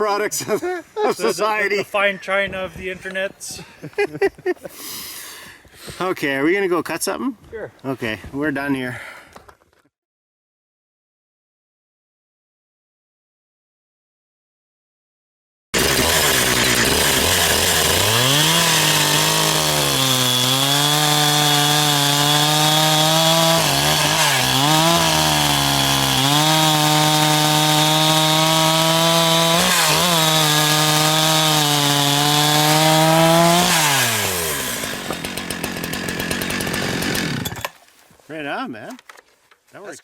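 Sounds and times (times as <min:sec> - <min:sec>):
chainsaw cutting wood: 0:15.8 - 0:37.9.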